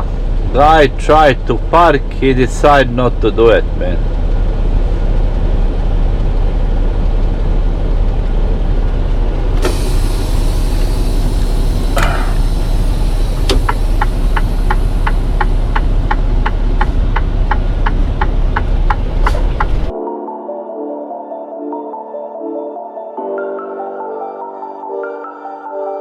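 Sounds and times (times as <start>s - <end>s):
diesel truck engine running: 0.0s - 19.9s
air hiss: 9.6s - 16.0s
turn signal relay clicking: 9.6s - 19.9s.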